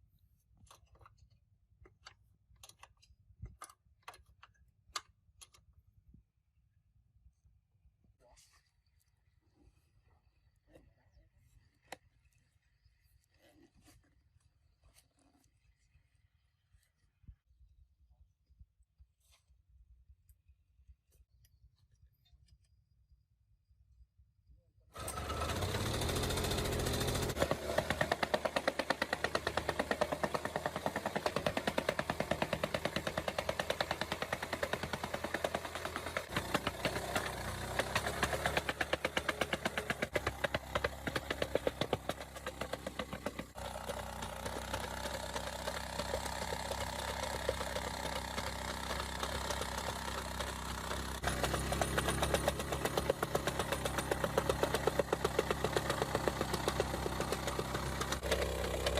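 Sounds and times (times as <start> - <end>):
earth compactor engine pounding: 25.0 - 58.9.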